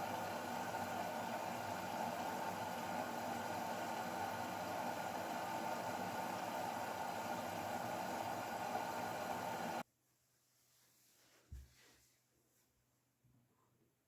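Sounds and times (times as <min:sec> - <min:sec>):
washing machine humming: 0:00.0 - 0:09.8.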